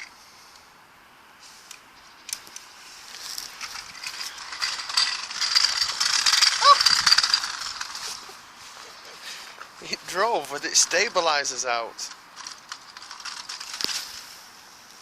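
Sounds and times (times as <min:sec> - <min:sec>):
toy truck gears clattering: 0:02.1 - 0:08.4, 0:09.9 - 0:14.3.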